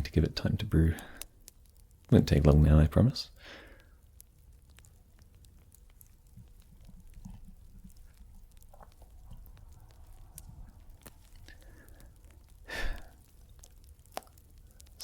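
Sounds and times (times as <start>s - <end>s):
fire crackles: 0.0s - 15.0s
fire rumbling: 0.0s - 15.0s.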